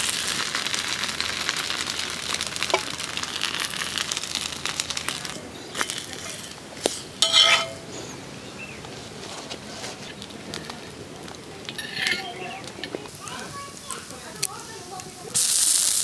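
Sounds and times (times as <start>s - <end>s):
roti sizzling in oil: 0.0s - 8.2s, 9.0s - 16.0s
metal spatula clinking on pan: 7.2s - 7.9s.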